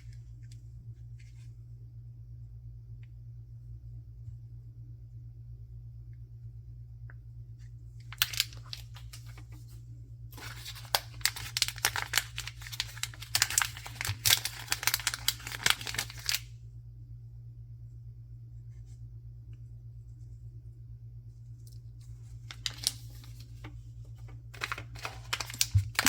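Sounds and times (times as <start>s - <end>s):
steady low hum: 0.0s - 26.0s
packaging crackling and tearing: 8.0s - 9.4s, 10.4s - 16.5s, 22.4s - 23.6s, 24.6s - 26.0s
packaging rustle: 8.0s - 9.8s, 10.4s - 16.5s, 22.1s - 26.0s.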